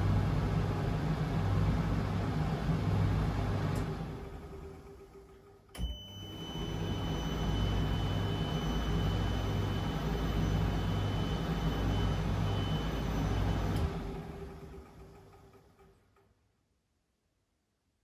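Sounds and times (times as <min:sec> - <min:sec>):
washing machine drum humming: 0:05.8 - 0:14.8.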